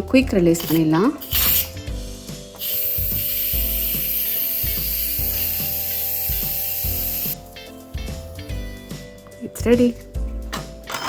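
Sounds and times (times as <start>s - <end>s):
steam hissing from valve: 1.2s - 1.8s, 2.6s - 7.4s.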